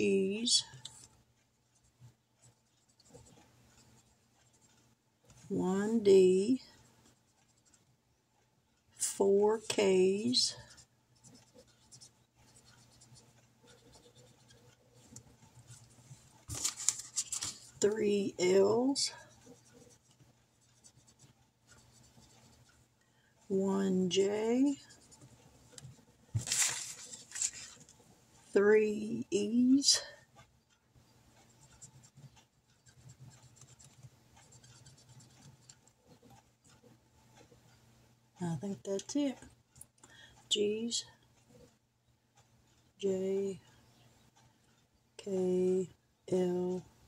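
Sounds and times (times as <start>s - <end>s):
low room hum: 0.0s - 47.0s
small irregular ticks: 0.4s - 47.0s
pen scratching on paper: 1.7s - 7.9s, 9.3s - 22.9s, 24.0s - 26.2s, 31.4s - 36.9s
paper being handled: 15.8s - 17.8s, 26.4s - 28.0s.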